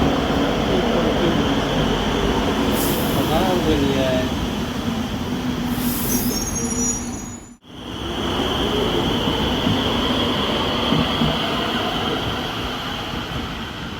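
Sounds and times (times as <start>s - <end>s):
light-rail train running: 0.0s - 13.9s
train wheel squeal: 5.7s - 7.6s.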